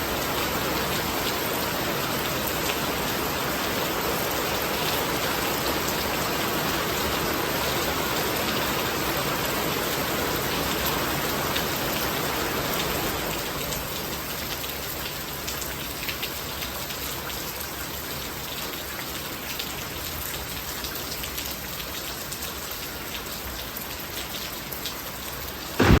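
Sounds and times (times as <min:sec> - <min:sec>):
raindrops hitting close by: 0:00.0 - 0:26.0
steady rain: 0:00.0 - 0:26.0.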